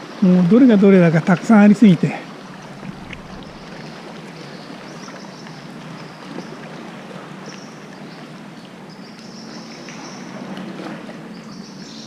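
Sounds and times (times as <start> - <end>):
sea water lapping: 0.0 - 8.7.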